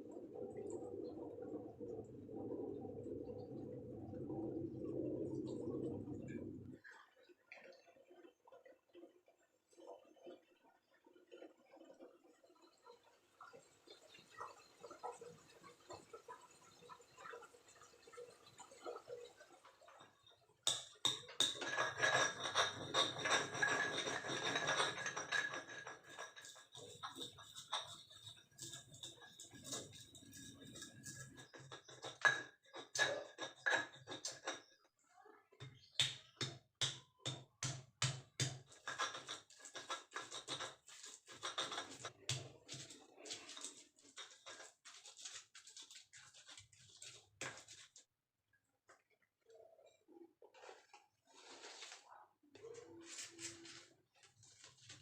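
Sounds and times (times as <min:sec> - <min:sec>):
utensils clattering against pot: 0:20.7 - 0:34.8, 0:38.1 - 0:44.9.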